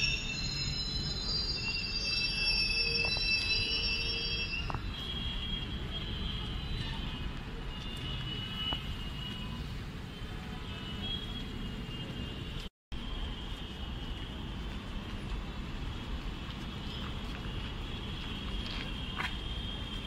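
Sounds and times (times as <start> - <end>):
high-pitched wheel squeal: 0.0 - 5.6.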